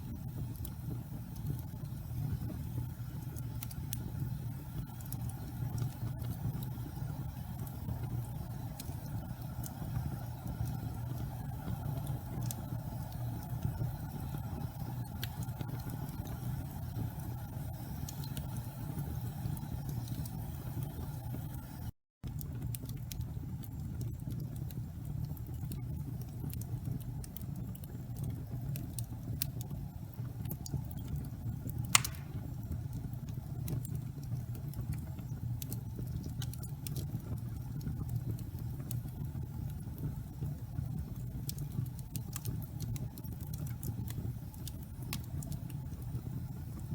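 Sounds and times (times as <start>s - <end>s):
wood fire rumbling and crackling: 0.0s - 46.9s
fire pop: 31.6s - 37.1s.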